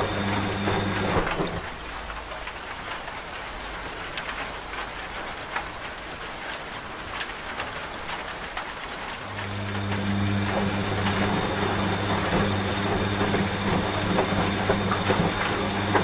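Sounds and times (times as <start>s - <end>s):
washing machine hum: 0.0s - 2.9s, 8.8s - 16.0s
steady rain: 0.0s - 16.0s.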